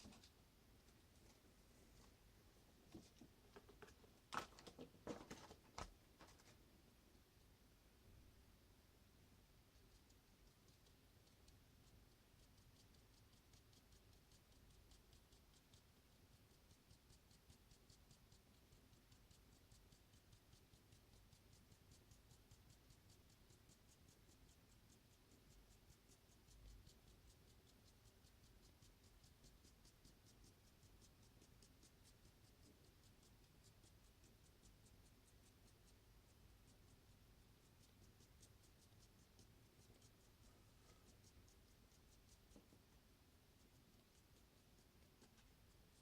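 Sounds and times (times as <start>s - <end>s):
faint rapid ticking: 9.5s - 46.0s.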